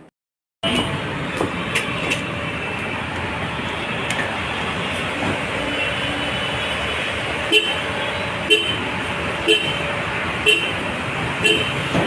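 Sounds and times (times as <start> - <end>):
steady vehicle-like noise: 0.0 - 12.0.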